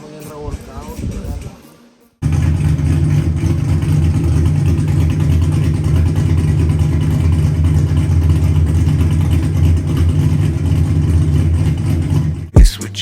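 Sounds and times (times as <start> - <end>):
car engine droning: 2.2 - 12.6.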